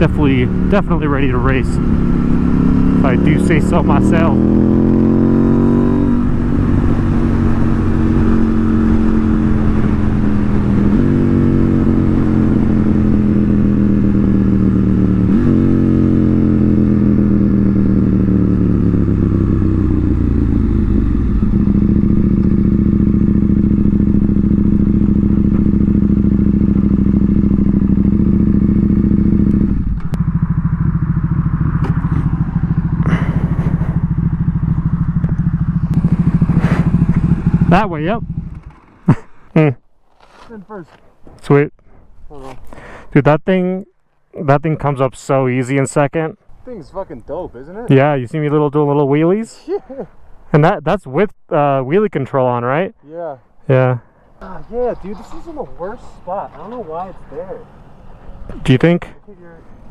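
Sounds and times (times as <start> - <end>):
motorcycle engine downshifting: 0.0 - 41.0, 54.4 - 59.0.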